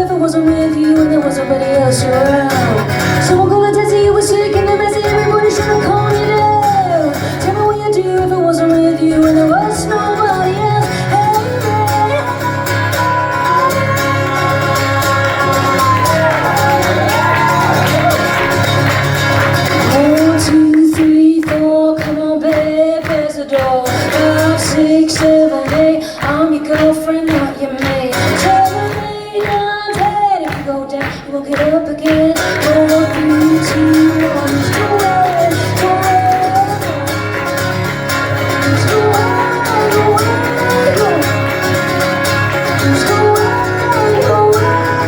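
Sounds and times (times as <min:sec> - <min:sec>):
live band playing: 0:00.0 - 0:30.9, 0:32.2 - 0:45.0
person singing: 0:00.0 - 0:45.0.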